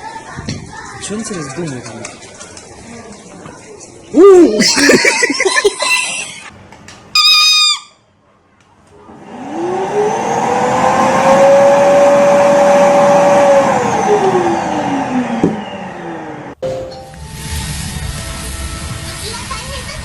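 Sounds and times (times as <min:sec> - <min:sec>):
brief high-pitched call: 0:07.2 - 0:08.0.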